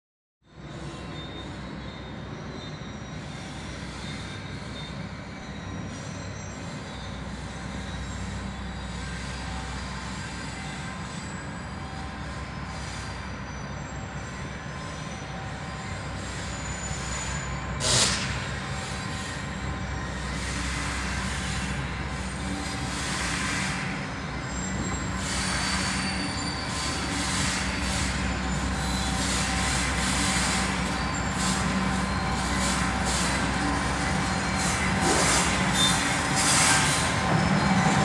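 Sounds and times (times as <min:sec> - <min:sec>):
diesel locomotive rumbling: 0:00.5 - 0:38.0
wheel squeal: 0:00.5 - 0:38.0
loud burst of noise: 0:17.8 - 0:18.6.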